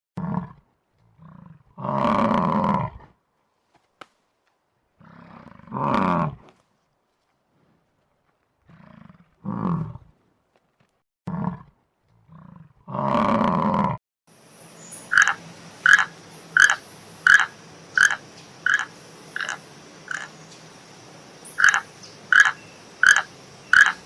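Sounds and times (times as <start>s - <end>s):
deep animal roaring: 0.2s - 3.2s, 5.0s - 6.5s, 8.7s - 10.1s, 11.3s - 14.0s.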